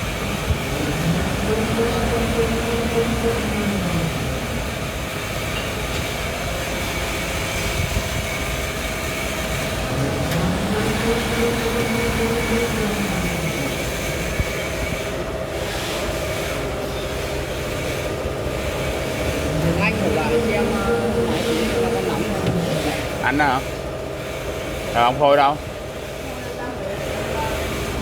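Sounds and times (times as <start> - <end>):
machine clattering and humming: 0.0 - 28.0.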